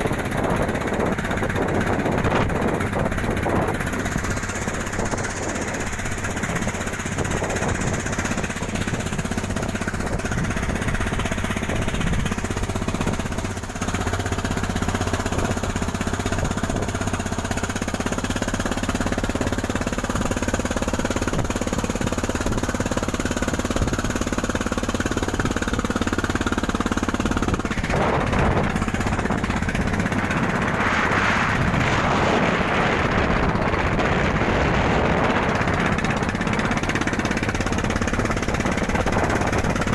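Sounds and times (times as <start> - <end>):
boat engine rattling: 0.0 - 39.9
loud noisy rush: 27.5 - 39.9.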